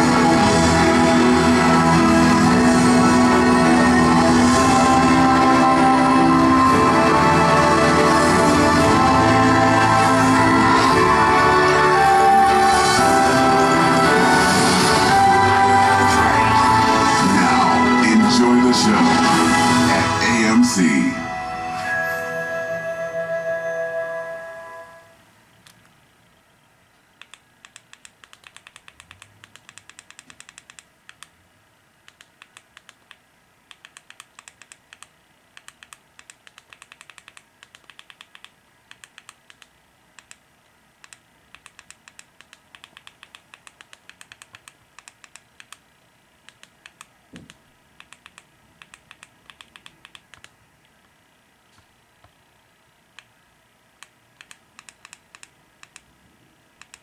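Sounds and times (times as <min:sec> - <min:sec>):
computer keyboard typing: 0:27.2 - 0:31.3, 0:32.1 - 0:40.4, 0:41.0 - 0:45.8, 0:46.5 - 0:50.6, 0:54.4 - 0:56.0, 0:56.8 - 0:57.0.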